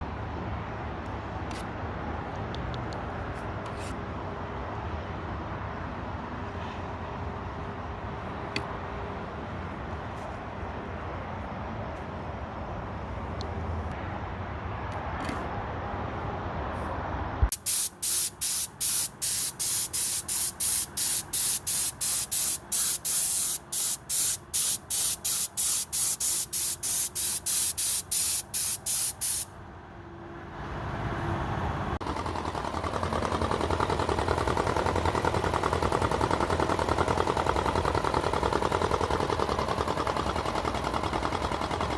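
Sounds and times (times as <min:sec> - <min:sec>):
spray paint hissing bursts: 0:17.5 - 0:29.5
steady running noise: 0:32.0 - 0:41.9.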